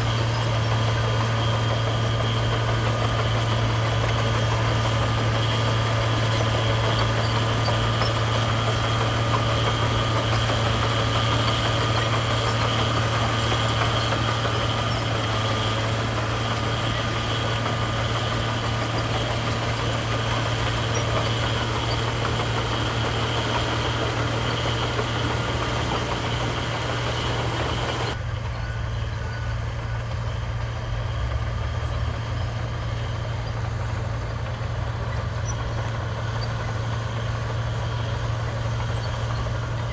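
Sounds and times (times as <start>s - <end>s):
diesel machinery engine hum: 0.0s - 39.9s.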